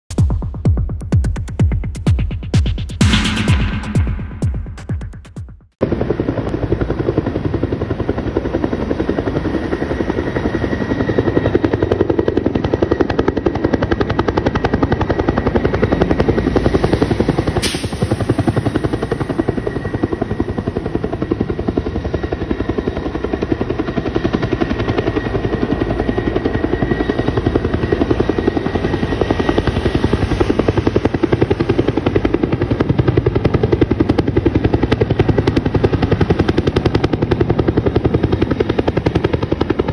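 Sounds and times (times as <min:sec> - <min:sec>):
helicopter rotor beating: 0:00.1 - 0:39.9.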